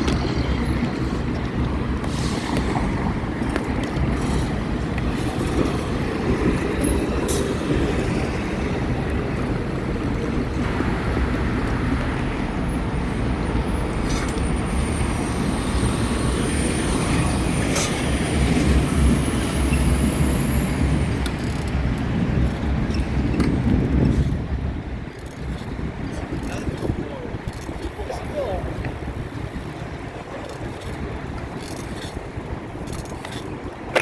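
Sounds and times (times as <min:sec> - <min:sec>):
traffic: 0:00.0 - 0:34.0
wind and road noise: 0:00.0 - 0:34.0.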